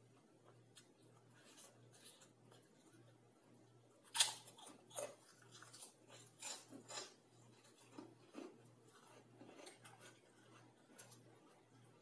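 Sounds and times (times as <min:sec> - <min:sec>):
crunchy chewing of crackers: 0:04.0 - 0:12.0.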